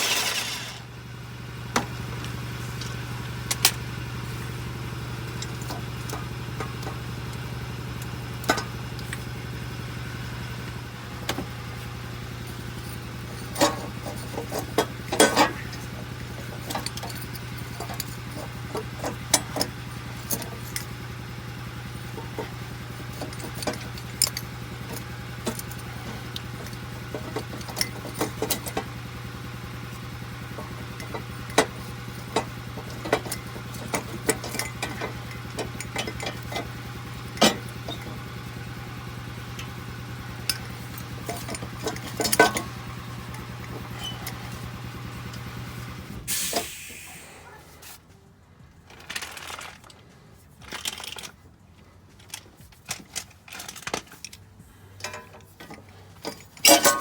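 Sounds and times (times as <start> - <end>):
hand tools clinking on metal: 0.0 - 0.8, 12.4 - 21.0, 21.9 - 29.0, 30.4 - 38.6, 39.5 - 45.5, 52.2 - 57.0
short hiss: 46.3 - 47.4.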